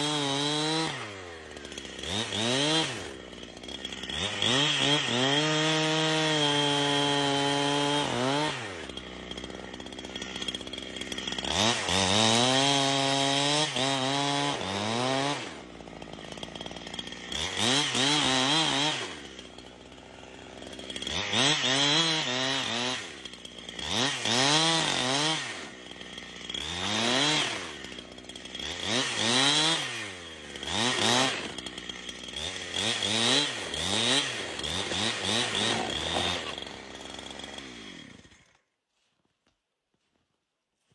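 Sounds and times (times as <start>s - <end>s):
chainsaw revving cutting wood: 0.0s - 38.6s.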